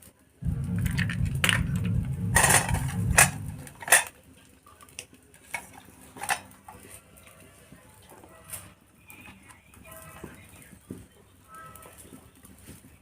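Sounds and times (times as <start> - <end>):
low rumble: 0.4 - 4.0
metal dishes clinking: 2.4 - 4.1.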